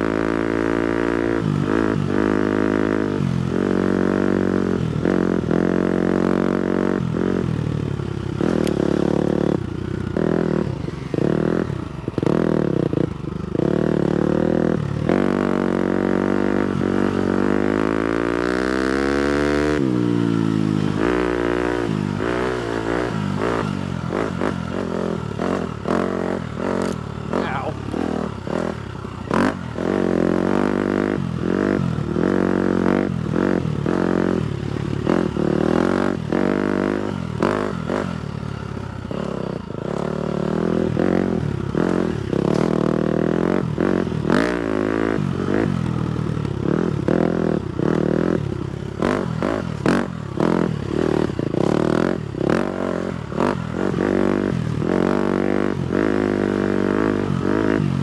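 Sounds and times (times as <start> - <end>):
motocross bike engine revving: 0.0 - 58.0
bike knocks and clatter: 41.9 - 42.8.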